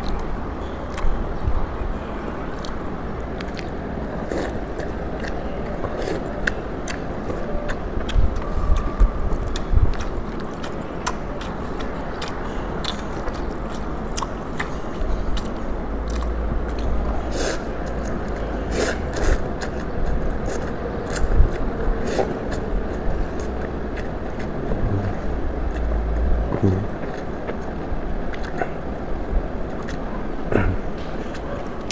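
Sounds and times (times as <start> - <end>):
chewing and slurping noodles: 2.6 - 31.9
steady low rumble: 14.6 - 31.9.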